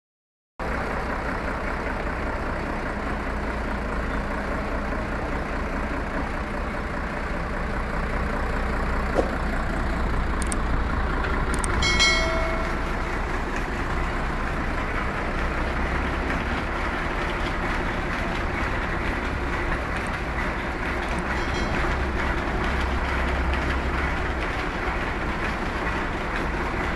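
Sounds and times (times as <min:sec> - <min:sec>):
tractor diesel engine rumbling: 0:00.6 - 0:26.9
brief high-pitched tone: 0:11.8 - 0:13.2.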